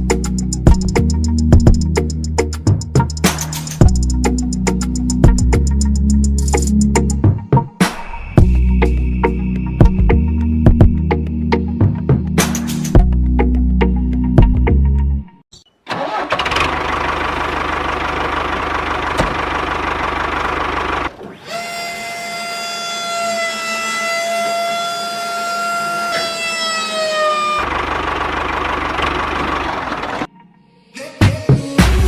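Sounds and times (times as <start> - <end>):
small motor rumbling: 16.3 - 30.3.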